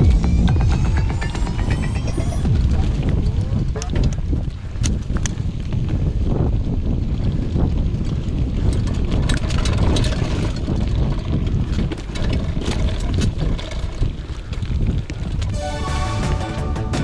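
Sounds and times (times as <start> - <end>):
wind buffeting microphone: 2.4 - 15.5.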